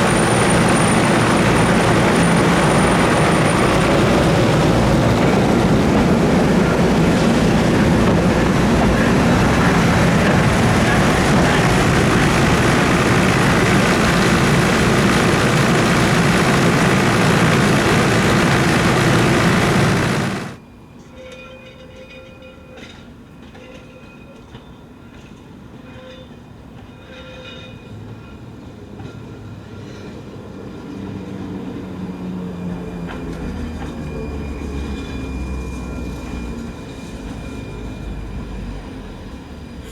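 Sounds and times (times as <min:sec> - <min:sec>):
tram running on rails: 0:00.0 - 0:39.9
low rumble: 0:01.0 - 0:20.6.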